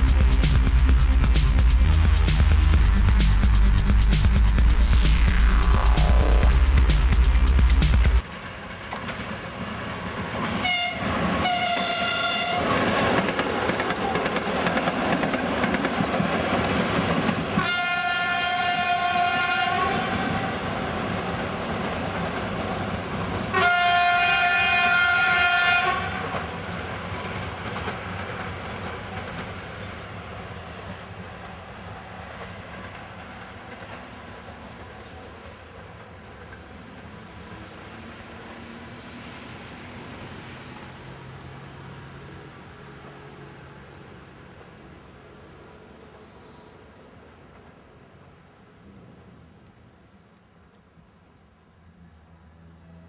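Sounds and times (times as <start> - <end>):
train wheel and rail noise: 0.0 - 53.0
train horn blasts: 10.6 - 12.8, 17.6 - 20.5, 23.5 - 26.3.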